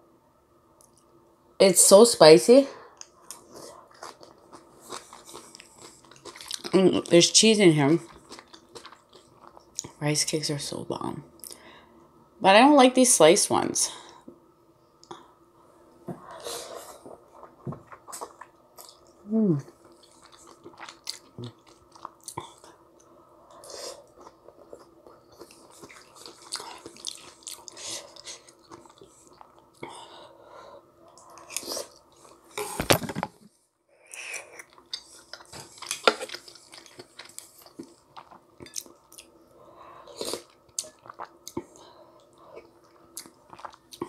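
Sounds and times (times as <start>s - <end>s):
chewing with wet clicks and smacks: 3.0s - 6.8s, 8.0s - 10.0s, 19.8s - 23.1s, 24.1s - 29.9s, 34.6s - 39.3s, 40.4s - 44.0s.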